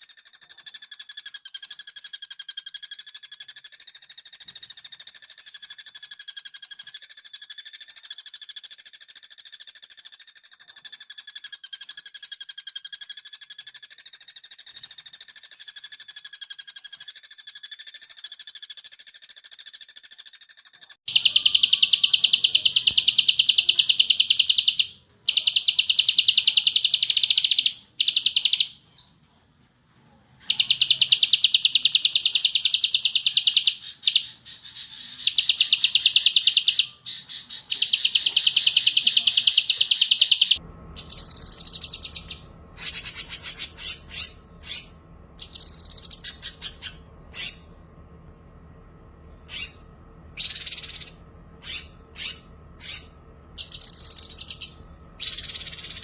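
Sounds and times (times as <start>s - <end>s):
bird chirps and whistles: 0.0s - 29.1s, 30.5s - 47.7s, 49.5s - 56.0s
songbirds fast trilling: 30.5s - 47.7s, 49.4s - 56.0s
steady hum: 33.8s - 56.0s.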